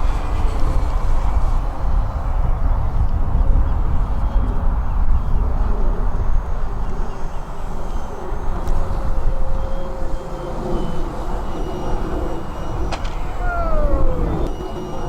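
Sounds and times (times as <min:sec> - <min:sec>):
model airplane engine drone: 0:00.0 - 0:15.0
heavy low rumbling noise: 0:11.3 - 0:15.0.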